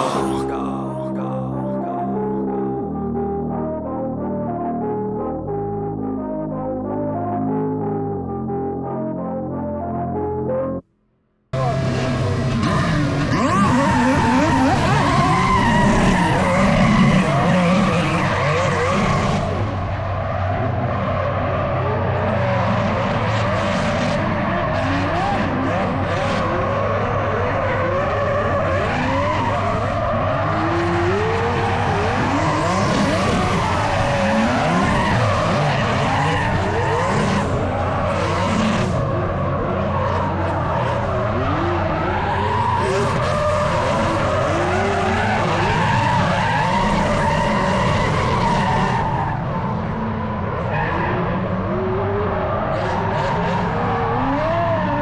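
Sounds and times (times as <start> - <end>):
car engines revving: 11.6 - 55.0
tyres skidding and squealing: 11.6 - 55.0.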